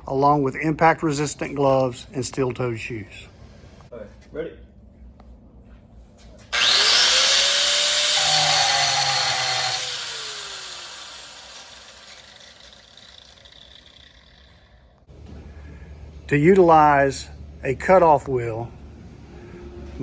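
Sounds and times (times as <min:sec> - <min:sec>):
electric angle grinder whining: 0:06.5 - 0:15.0.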